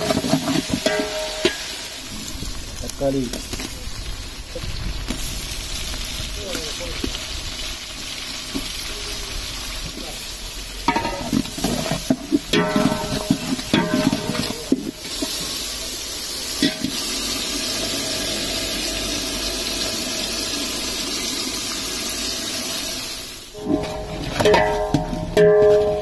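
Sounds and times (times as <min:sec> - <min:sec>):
metal ladle scraping and knocking: 0:00.0 - 0:01.8, 0:10.9 - 0:15.0, 0:23.6 - 0:26.0
vegetables sizzling in hot oil: 0:00.0 - 0:26.0.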